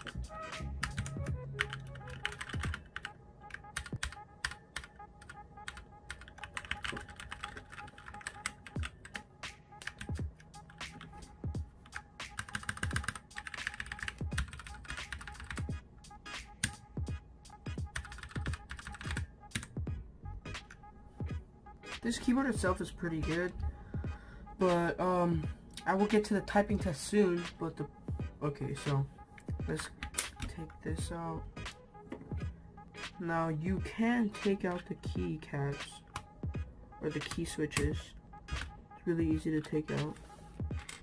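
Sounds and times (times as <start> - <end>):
mechanical keyboard clacks: 6.1 - 9.2, 12.4 - 15.6, 18.0 - 19.7.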